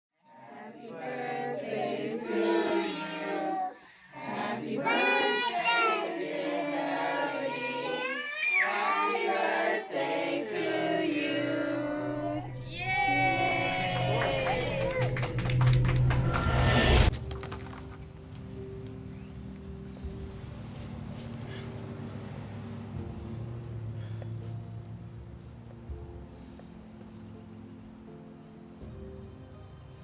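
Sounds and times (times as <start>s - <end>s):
person singing in high voice: 0.3s - 15.2s.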